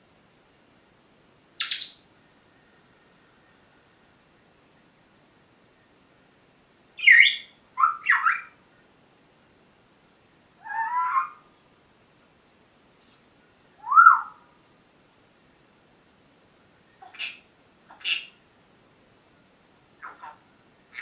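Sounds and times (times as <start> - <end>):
parrot calling and whistling: 7.0 - 8.5, 10.6 - 11.4, 13.0 - 14.4.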